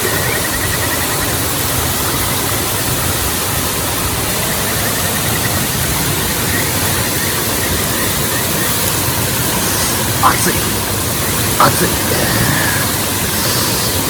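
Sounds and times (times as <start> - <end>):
waterfall roaring: 1.4 - 14.0.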